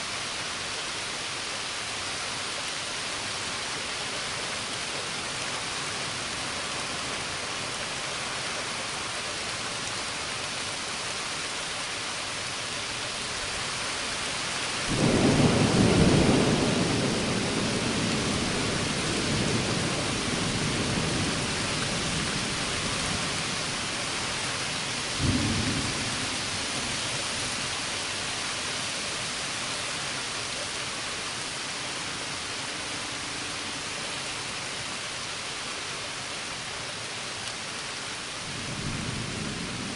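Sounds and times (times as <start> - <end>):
heavy rain hissing: 0.0 - 39.9
thunder clap rumbling: 14.9 - 22.1.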